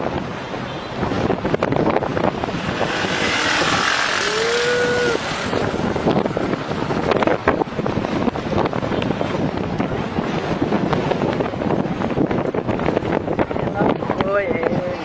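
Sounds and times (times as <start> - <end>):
wind buffeting the microphone: 0.0 - 15.0
short pitched whoop: 4.2 - 5.6.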